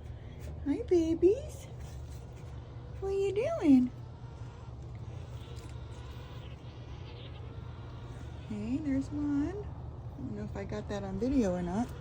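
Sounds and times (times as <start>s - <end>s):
steady low rumble: 0.0s - 12.0s
chicks begging calls: 3.2s - 9.4s.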